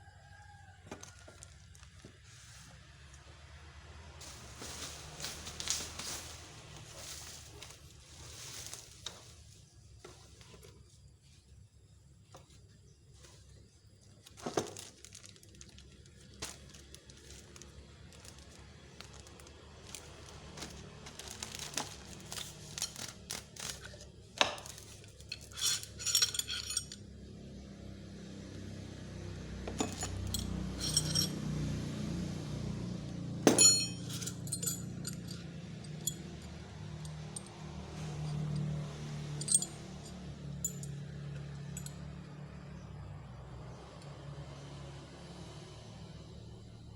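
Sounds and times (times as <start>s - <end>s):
metallic clinking rattles: 19.8s - 27.1s, 29.7s - 31.5s, 33.4s - 42.2s.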